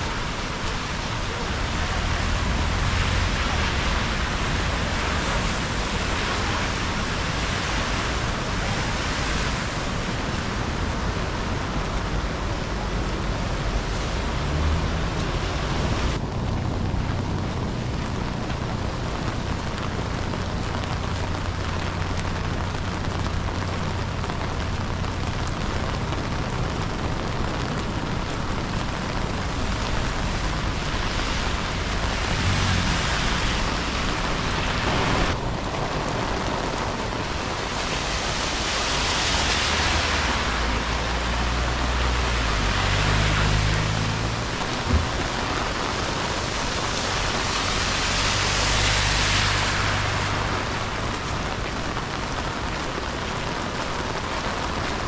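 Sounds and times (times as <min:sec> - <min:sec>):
steady rain falling: 0:00.0 - 0:55.0
low rumble: 0:14.8 - 0:37.6.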